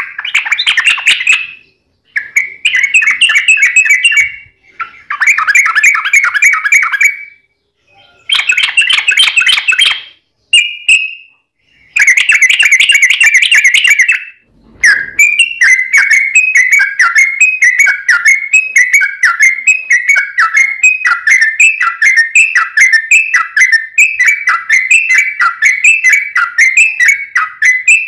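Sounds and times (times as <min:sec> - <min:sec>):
bird song chattering notes: 0:00.0 - 0:28.0.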